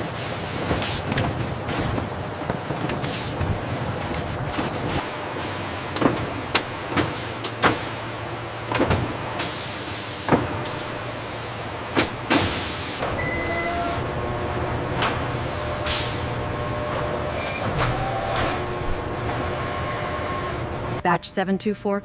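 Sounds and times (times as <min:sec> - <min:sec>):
machinery humming and hissing: 0:00.0 - 0:21.0.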